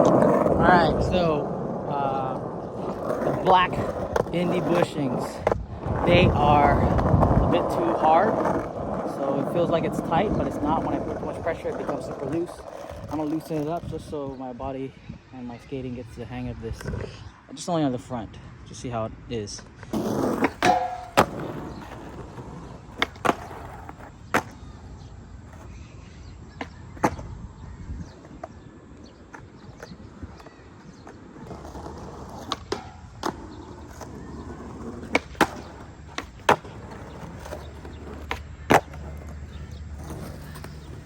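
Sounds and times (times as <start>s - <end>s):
skateboard clacking: 0.0s - 13.8s, 19.9s - 25.8s, 26.6s - 27.3s, 29.2s - 41.0s
skateboard wheels rolling on concrete: 0.0s - 41.0s.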